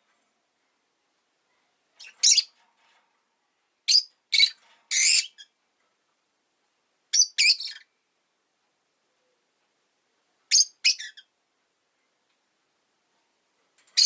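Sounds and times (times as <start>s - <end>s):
lovebird chirping: 2.0s - 2.5s, 3.8s - 5.6s, 7.1s - 8.0s, 10.5s - 11.3s.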